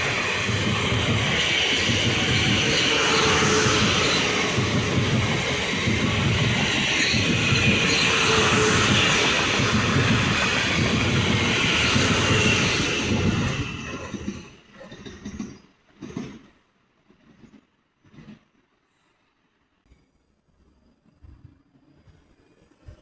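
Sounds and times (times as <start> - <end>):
electric train rushing past: 0.0 - 18.4.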